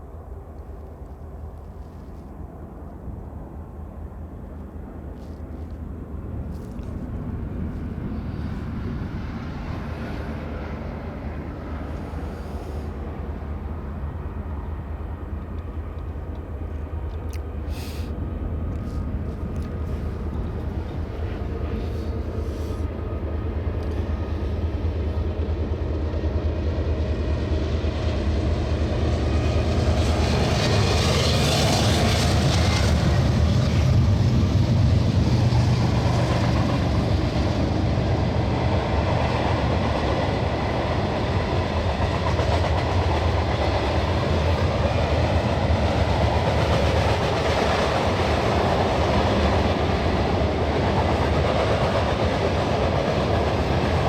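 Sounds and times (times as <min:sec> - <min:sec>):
freight train wheels clacking: 0:28.7 - 0:54.0.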